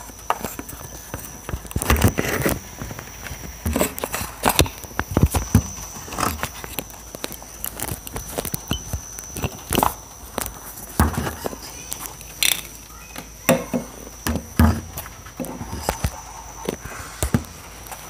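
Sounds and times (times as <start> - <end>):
faint high-pitched whine: 0.0 - 18.0.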